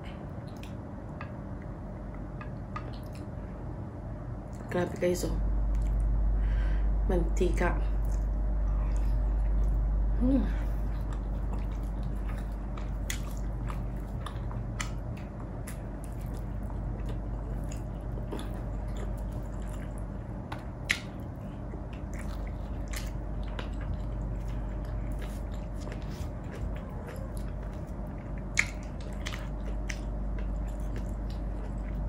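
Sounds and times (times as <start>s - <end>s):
steady low hum: 0.0s - 32.0s
wet squishy chewing: 10.6s - 32.0s.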